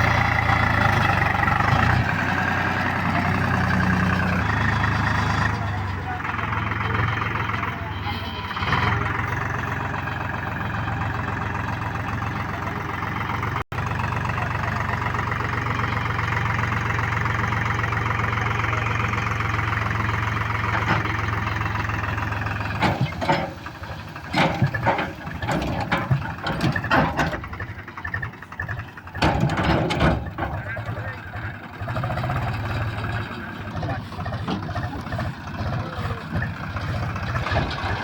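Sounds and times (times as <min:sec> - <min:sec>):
diesel engine idling: 0:00.0 - 0:38.0.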